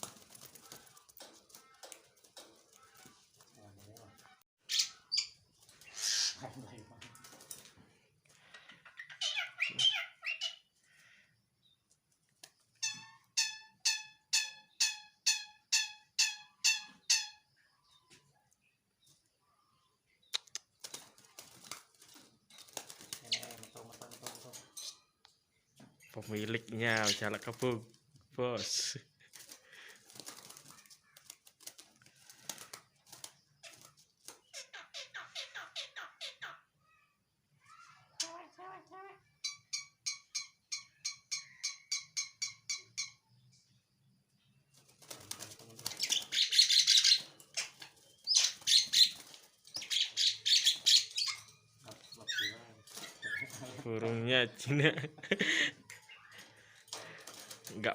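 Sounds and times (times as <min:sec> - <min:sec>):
starling calling: 0:00.0 - 0:07.6, 0:08.4 - 0:11.2, 0:26.0 - 0:27.7, 0:39.4 - 0:43.3, 0:45.3 - 0:53.9
starling chirping: 0:00.0 - 0:07.7, 0:08.4 - 0:11.8, 0:12.7 - 0:37.1, 0:39.3 - 0:57.9.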